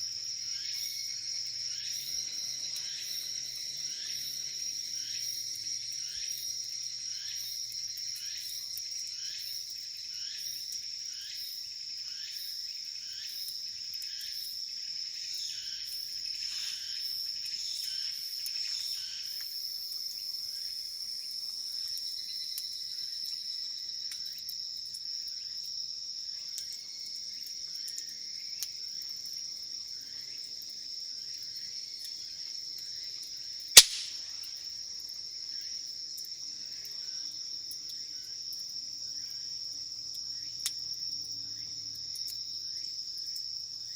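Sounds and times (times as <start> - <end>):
insects trilling: 0.0 - 43.9
insect repeating chirp: 33.8 - 34.2
sharp snap: 33.8 - 34.3.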